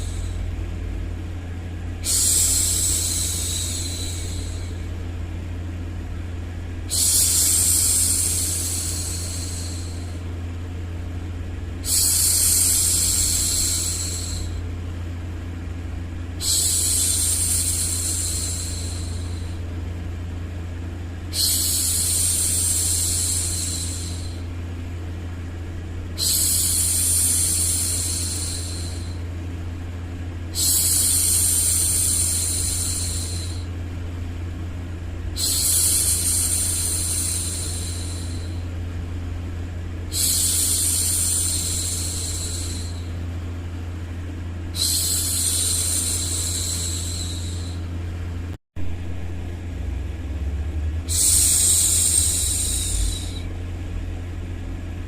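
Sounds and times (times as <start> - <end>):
low white-noise rumble: 0.0 - 55.0.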